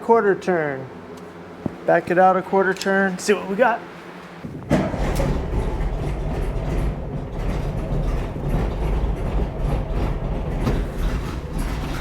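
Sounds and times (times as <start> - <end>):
engine idling with uneven clatter: 4.4 - 12.0.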